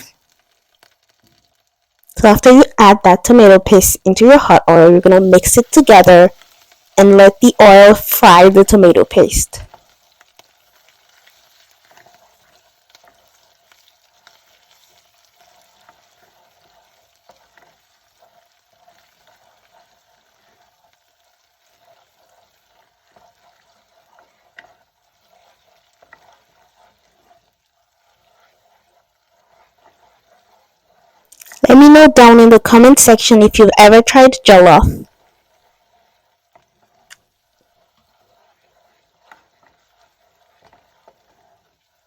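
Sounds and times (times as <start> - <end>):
tomato paste sizzling in oil: 0.0 - 42.0
light stirring clicks: 9.7 - 31.7, 35.2 - 41.8.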